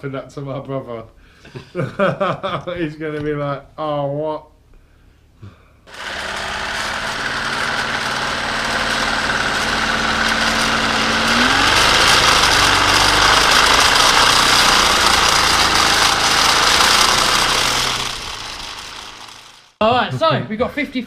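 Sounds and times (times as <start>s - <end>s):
model jet turbine whirring: 5.9s - 19.8s.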